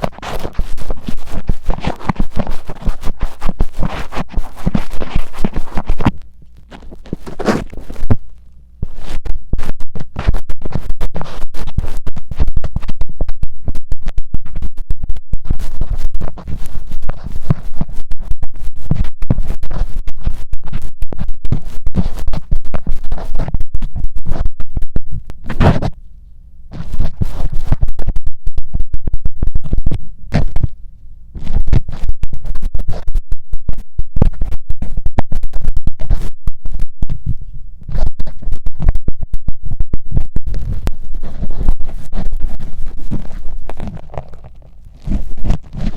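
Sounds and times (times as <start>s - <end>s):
metal ear pick scraping: 0.0s - 9.2s, 40.5s - 45.9s.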